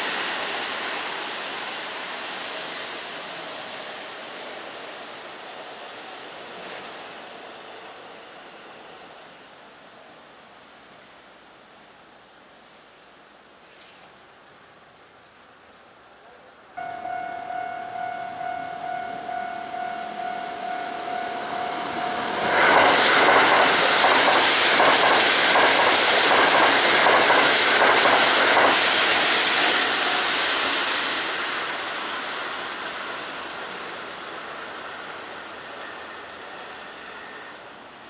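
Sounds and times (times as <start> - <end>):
train rushing past: 0.0 - 11.3, 16.8 - 38.0
steady tone: 16.8 - 23.6.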